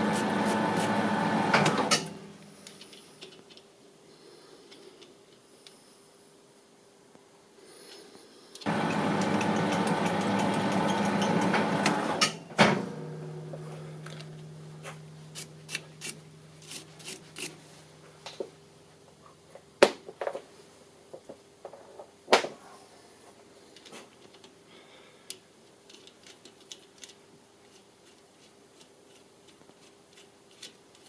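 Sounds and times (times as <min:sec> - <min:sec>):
metal lathe gear whine: 0:08.7 - 0:12.2
lathe stopping clunk: 0:08.7 - 0:13.4
low hum: 0:08.7 - 0:16.6.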